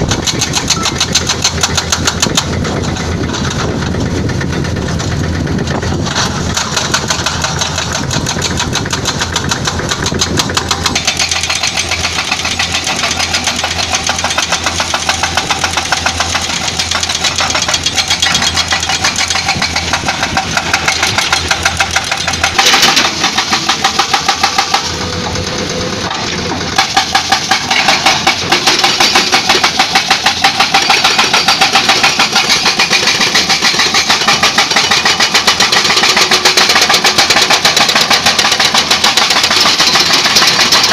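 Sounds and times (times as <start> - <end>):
hydraulic breaker hammering rock: 0.0 - 25.4, 26.0 - 40.9
diesel engine running: 0.0 - 40.9.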